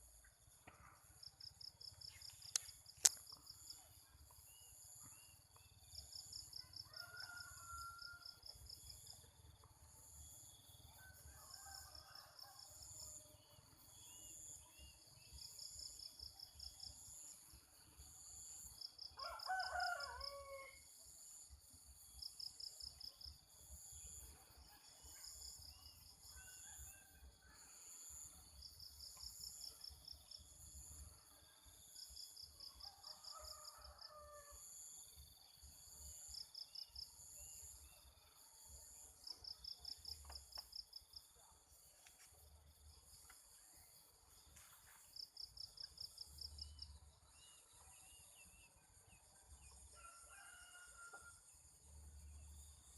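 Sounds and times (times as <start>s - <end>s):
rooster crowing: 6.6s - 8.4s, 19.2s - 20.8s, 32.9s - 34.6s, 50.0s - 51.5s.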